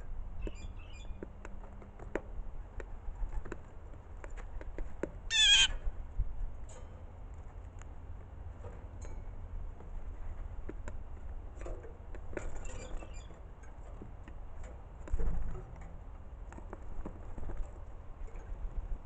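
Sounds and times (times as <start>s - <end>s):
light taps and clinks: 8.6s - 10.0s.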